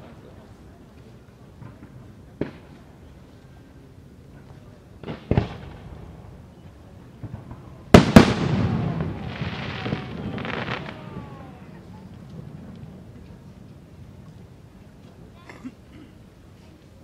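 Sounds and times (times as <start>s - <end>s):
rolling echo and crackling: 4.4s - 15.3s
dull firework bangs: 5.0s - 6.0s, 7.2s - 12.7s
loud firework shell bursts: 7.4s - 11.8s.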